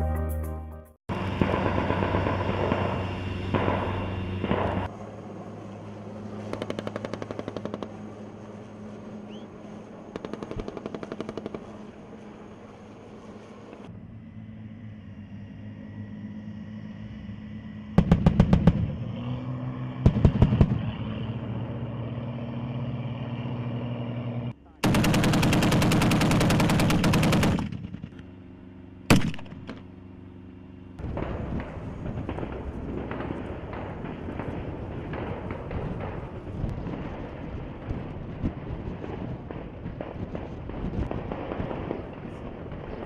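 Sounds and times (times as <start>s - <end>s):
engine drone: 0.0s - 43.0s
machine-gun fire: 24.8s - 28.1s.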